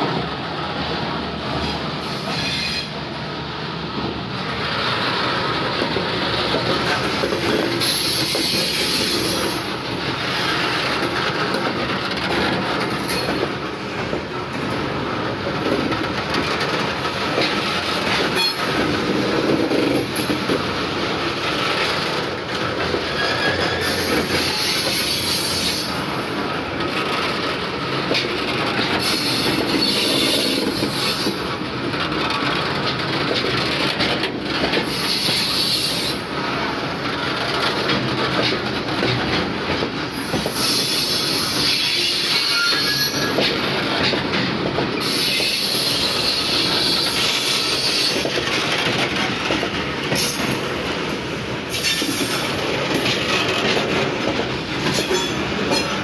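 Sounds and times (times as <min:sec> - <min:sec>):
train wheels rumbling and clattering: 0:00.0 - 0:56.0
high-pitched wheel squeal: 0:02.2 - 0:03.0, 0:40.6 - 0:43.4.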